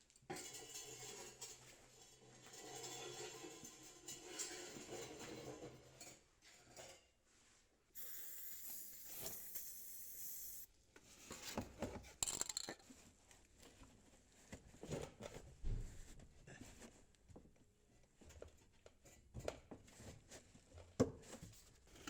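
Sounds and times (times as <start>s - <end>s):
parts rubbing and scraping: 8.0s - 10.7s
steady hiss: 8.0s - 10.7s.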